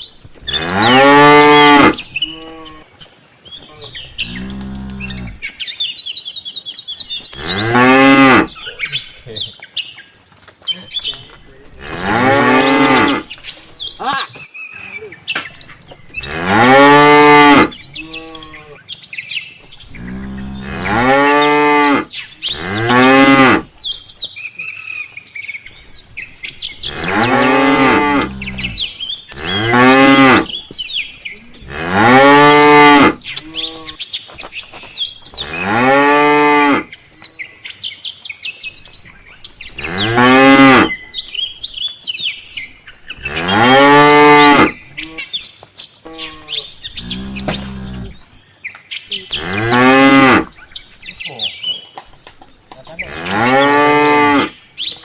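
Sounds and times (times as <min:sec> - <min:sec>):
small birds chirping: 0:00.0 - 0:55.0
cattle mooing: 0:00.5 - 0:02.9, 0:04.1 - 0:05.5, 0:07.4 - 0:08.6, 0:11.8 - 0:13.3, 0:16.2 - 0:18.8, 0:19.9 - 0:23.7, 0:26.8 - 0:30.6, 0:31.5 - 0:34.0, 0:35.4 - 0:36.9, 0:39.8 - 0:41.0, 0:43.1 - 0:45.3, 0:46.1 - 0:48.2, 0:49.3 - 0:50.5, 0:53.0 - 0:54.6.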